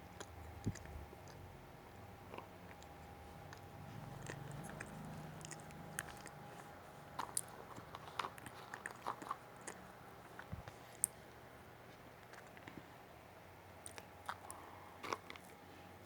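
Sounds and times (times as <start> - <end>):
faint low hum: 0.0 - 16.0
person chewing and crunching: 0.1 - 1.5, 2.2 - 11.3, 13.8 - 15.6.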